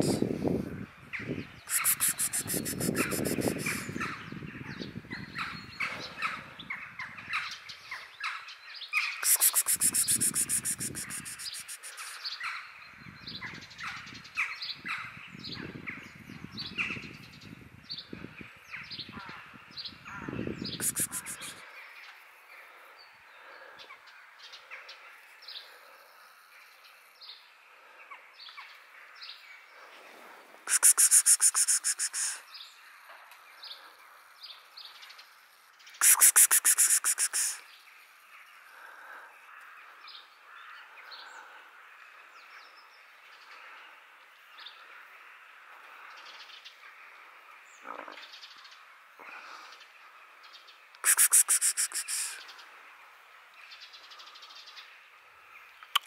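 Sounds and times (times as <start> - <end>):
birds chirping: 1.4 - 4.4, 9.2 - 12.4, 20.6 - 22.1, 30.7 - 32.4
rapid high-pitched rattling: 9.2 - 12.1.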